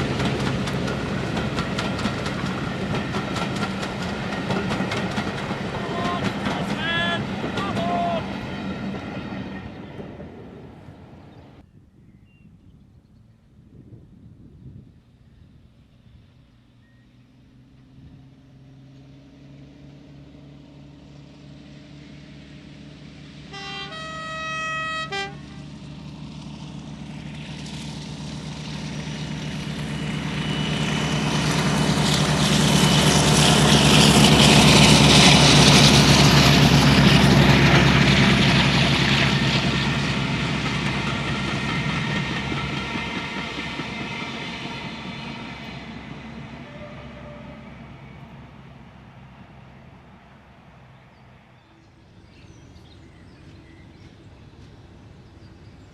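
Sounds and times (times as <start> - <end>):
locomotive engine drone: 0.0 - 11.7, 13.1 - 55.9
locomotive horn blast: 23.4 - 25.8, 46.4 - 48.6.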